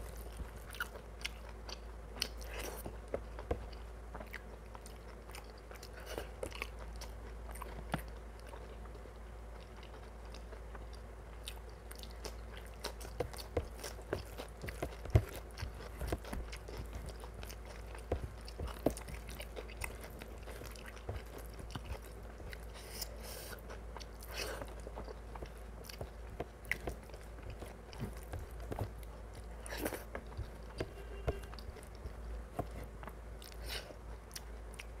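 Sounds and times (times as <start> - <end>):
chewing and wet mouth sounds: 0.0 - 35.0
steady low hum: 0.0 - 35.0
small clicks and smacks: 24.6 - 33.6.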